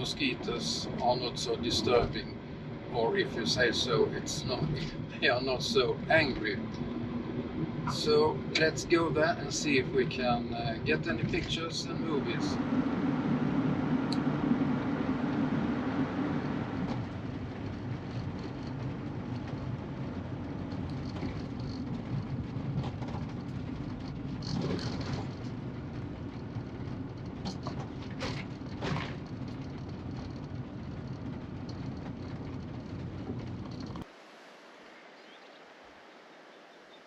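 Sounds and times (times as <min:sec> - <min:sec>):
road and engine rumble: 0:00.0 - 0:37.0
sharp clicks and rattles: 0:07.6 - 0:13.0, 0:14.0 - 0:34.0.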